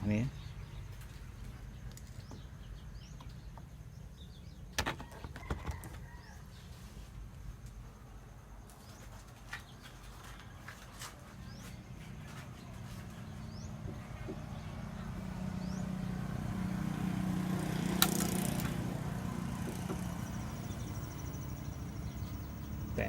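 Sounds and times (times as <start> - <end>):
birds chirping: 0.0 - 6.8, 8.5 - 23.0
sharp clicks: 17.9 - 18.8.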